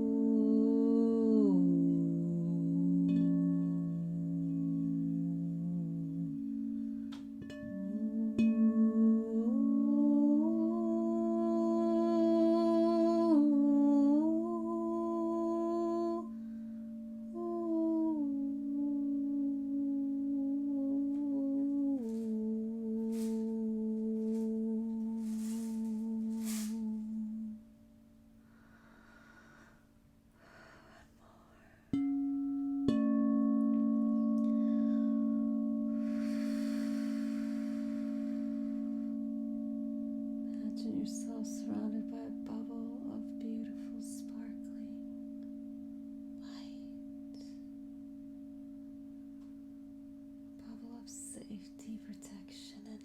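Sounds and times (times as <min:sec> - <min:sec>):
person humming long notes: 0:00.0 - 0:16.4, 0:17.2 - 0:27.7, 0:32.9 - 0:39.8, 0:40.5 - 0:45.1
singing bowl ringing: 0:00.0 - 0:28.5, 0:31.9 - 0:53.0.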